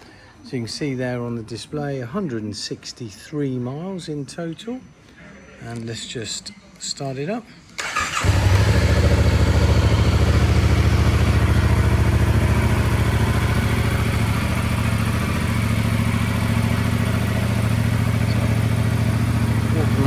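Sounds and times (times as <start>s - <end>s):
motorcycle engine idling: 7.8s - 20.0s.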